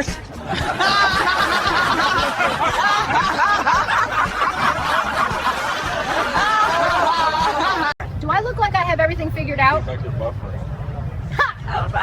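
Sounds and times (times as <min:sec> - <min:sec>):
people laughing and snickering: 0:00.0 - 0:08.0.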